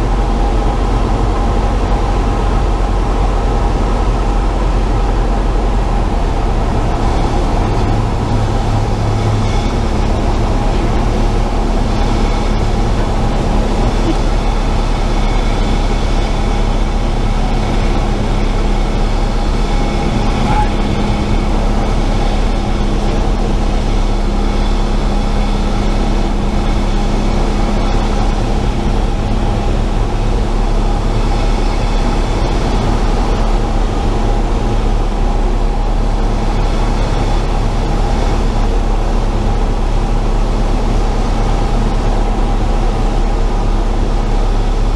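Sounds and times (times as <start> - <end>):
piston engine drone: 0.0 - 44.9.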